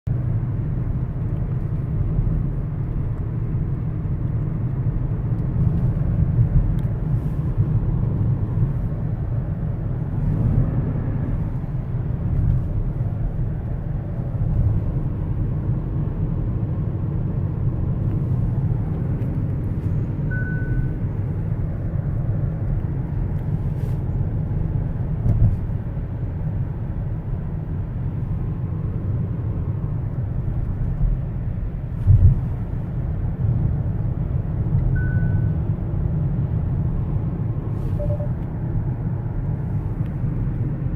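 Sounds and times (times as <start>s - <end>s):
car road rumble: 0.1s - 40.9s
short beep: 20.3s - 21.1s, 35.0s - 35.6s, 38.0s - 38.4s.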